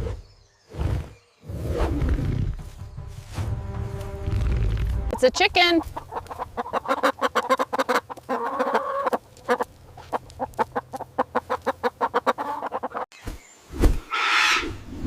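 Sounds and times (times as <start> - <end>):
chicken clucking: 5.2 - 13.1.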